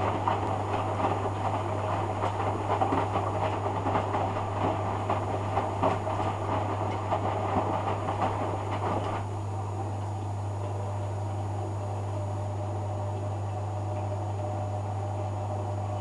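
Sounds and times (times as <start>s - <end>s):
washing machine drum churning: 0.0s - 12.4s
washing machine humming: 0.0s - 16.0s.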